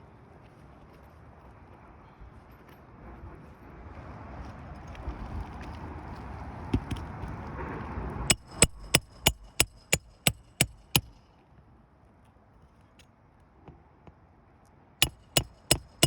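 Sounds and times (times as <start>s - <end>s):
hammer striking metal: 8.3s - 11.2s, 15.0s - 16.0s.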